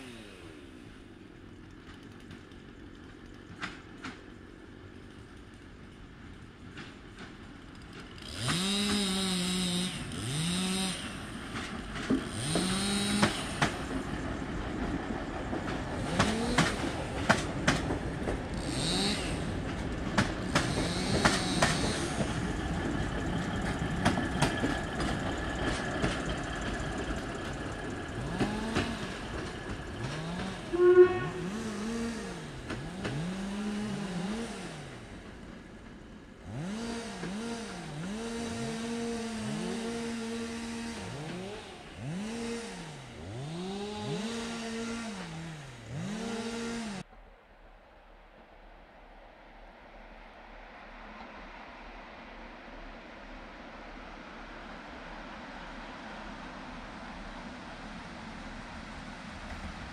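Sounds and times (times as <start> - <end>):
wheels clattering over rail joints: 0.0 - 47.0
train engine running: 0.0 - 47.1, 50.0 - 59.9.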